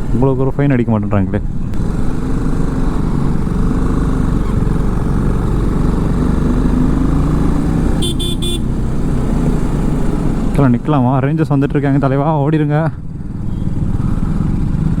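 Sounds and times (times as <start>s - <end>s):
motorcycle engine running: 1.4s - 15.0s
vehicle horn toots: 8.0s - 8.7s.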